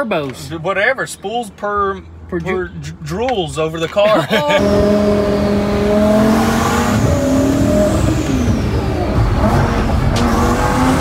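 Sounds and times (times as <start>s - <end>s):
car engine accelerating: 4.5s - 11.0s.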